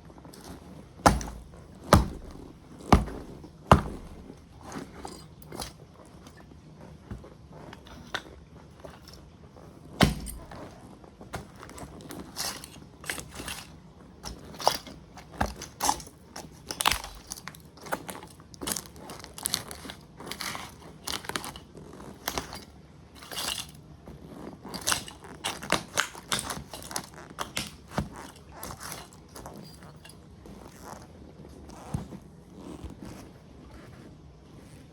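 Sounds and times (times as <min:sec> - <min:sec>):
plastic toy cracking and crunching: 0:11.4 - 0:23.9, 0:24.6 - 0:30.1.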